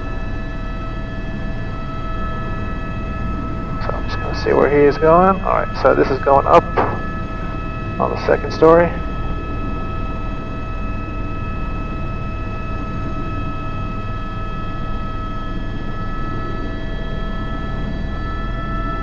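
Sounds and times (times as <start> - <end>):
helicopter rotor noise: 0.0 - 19.0
helicopter turbine whine: 0.0 - 19.0.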